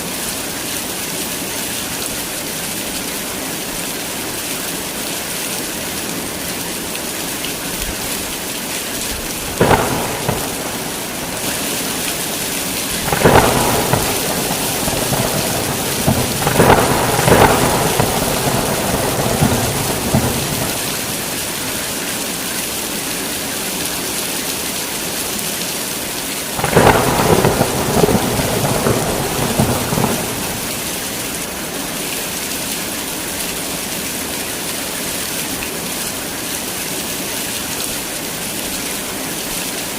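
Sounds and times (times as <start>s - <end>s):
heavy rain falling: 0.0s - 39.9s
thunder rolling: 9.2s - 21.9s, 26.6s - 31.5s
thunder crack: 9.4s - 21.9s, 26.6s - 31.5s.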